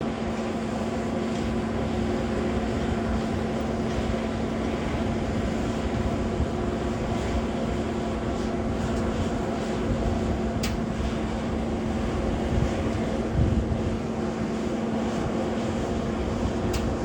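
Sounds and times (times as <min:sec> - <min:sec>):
jet engines droning: 0:00.0 - 0:17.0.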